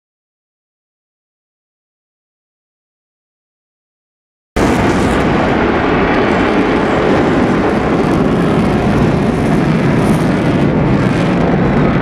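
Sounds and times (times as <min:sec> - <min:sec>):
fighter jet engine noise: 0:04.6 - 0:12.0.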